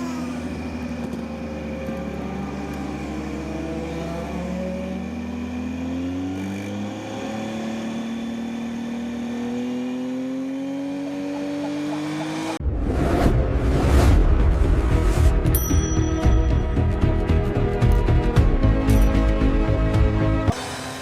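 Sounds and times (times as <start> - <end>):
racing motorcycle engine accelerating: 0.0 - 12.6.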